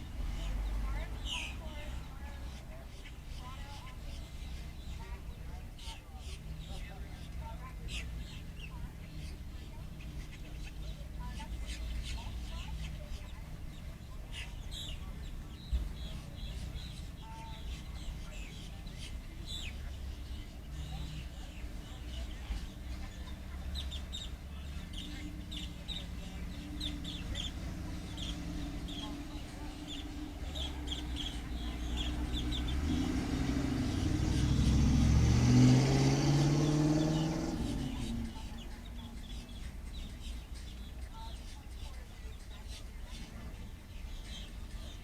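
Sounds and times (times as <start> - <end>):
birds chirping and squawking: 0.0 - 45.0
car driving past: 15.7 - 40.0.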